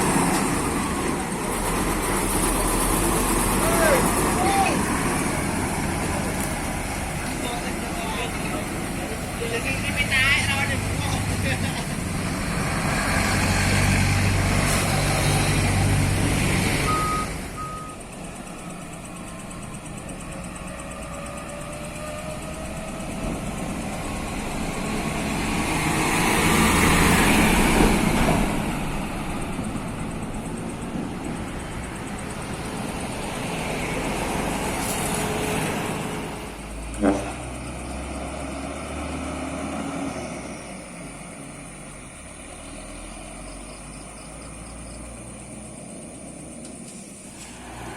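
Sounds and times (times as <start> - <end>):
road vehicles passing: 0.0 - 47.9
short high beeps: 16.9 - 18.0.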